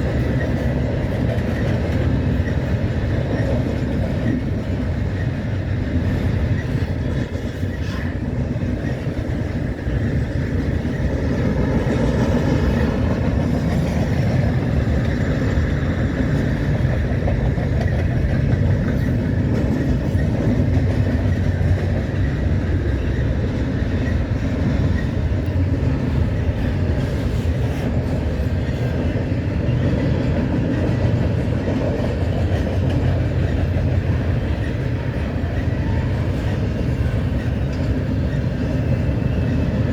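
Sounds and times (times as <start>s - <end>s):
steel wheels rumbling on rails: 0.0s - 39.9s.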